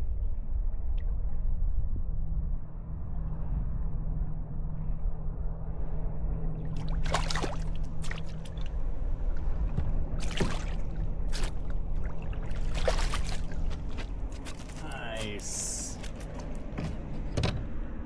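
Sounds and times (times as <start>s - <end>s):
steady low hum: 0.0s - 18.0s
water splashing: 6.7s - 8.8s, 10.2s - 17.0s.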